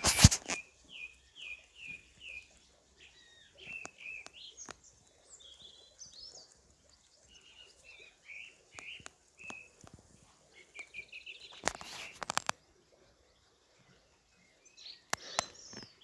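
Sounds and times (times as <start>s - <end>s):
loud rustle: 0.0s - 0.6s
songbird singing: 0.0s - 16.0s.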